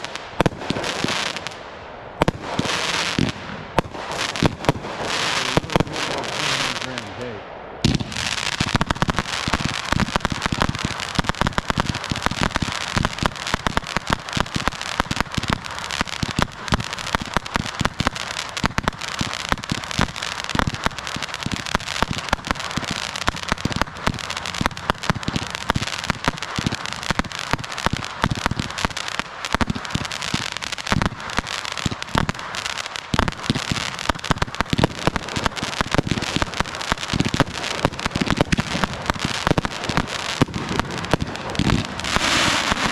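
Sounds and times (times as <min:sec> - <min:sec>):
fireworks bangs: 0:00.0 - 0:42.9
fireworks crackling and popping: 0:00.0 - 0:42.9.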